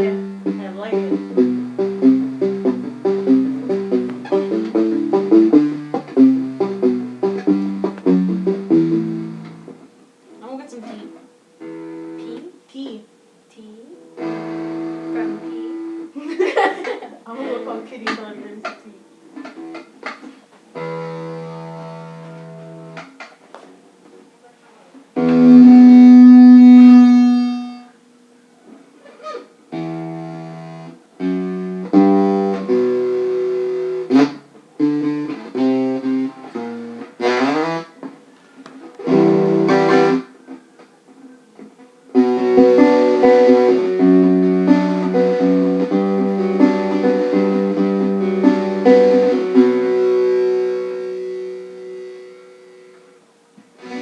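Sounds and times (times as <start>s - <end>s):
guitar notes and chords: 0.0s - 13.0s, 13.6s - 16.2s, 19.2s - 23.3s, 25.1s - 28.3s, 29.2s - 54.0s.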